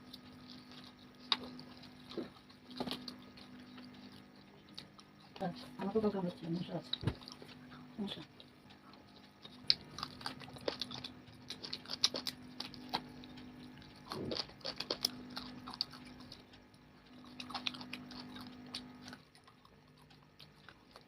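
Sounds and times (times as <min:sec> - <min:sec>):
faint low hum: 0:00.0 - 0:21.0
wet chewing mouth clicks: 0:08.4 - 0:21.0.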